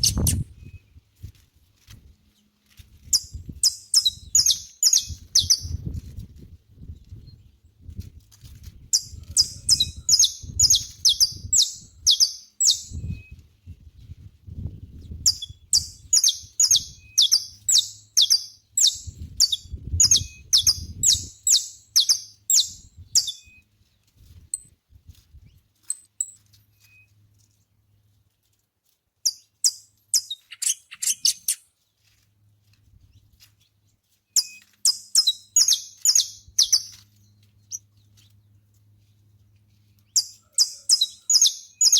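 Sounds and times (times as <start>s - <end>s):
finch singing: 0.0s - 0.8s, 3.1s - 5.9s, 8.9s - 13.4s, 15.0s - 23.6s, 29.2s - 31.6s, 34.4s - 37.8s, 40.0s - 41.9s.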